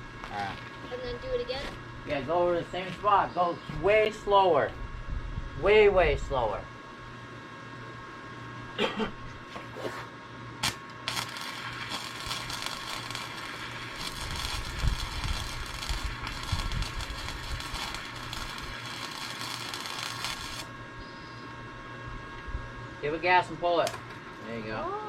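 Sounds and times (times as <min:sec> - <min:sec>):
welder arc crackling: 0:00.0 - 0:04.8, 0:10.5 - 0:20.8
short spark: 0:10.6 - 0:20.7.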